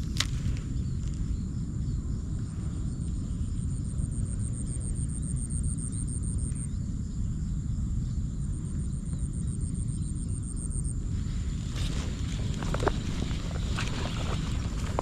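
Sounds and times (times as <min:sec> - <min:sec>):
wind buffeting microphone: 0:11.0 - 0:15.0.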